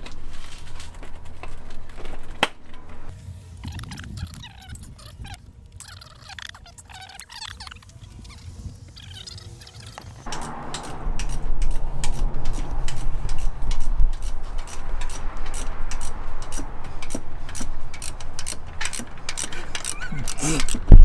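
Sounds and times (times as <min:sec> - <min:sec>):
steady low hum: 0:10.3 - 0:21.0.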